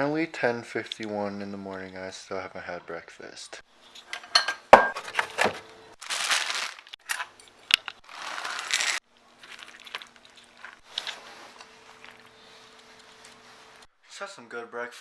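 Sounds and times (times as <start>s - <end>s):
rustling crinkling noise: 5.0s - 13.9s
faint steady hum: 9.1s - 14.5s.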